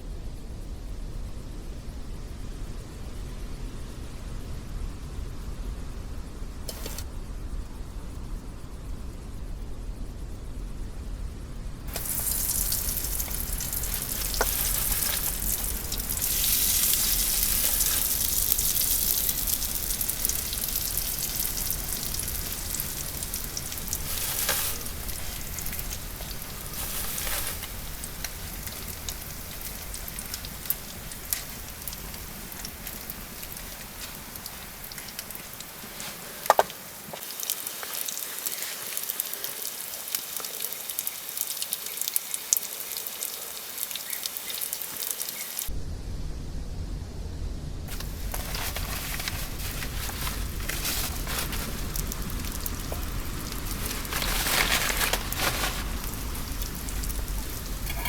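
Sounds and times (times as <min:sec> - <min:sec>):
fire crackles: 0:02.2 - 0:07.6, 0:11.4 - 0:58.0
food sizzling over campfire: 0:06.5 - 0:07.1, 0:11.8 - 0:45.8, 0:47.9 - 0:58.0.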